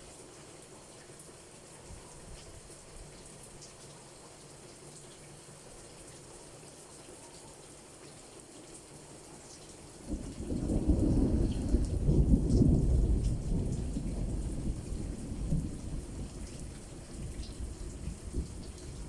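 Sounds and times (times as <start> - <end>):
rain falling: 0.0 - 19.0
thunder rumble: 10.1 - 19.0.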